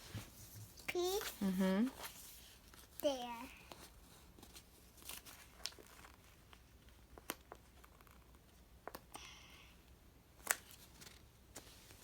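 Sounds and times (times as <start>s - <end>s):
soft rustle: 0.0s - 7.0s.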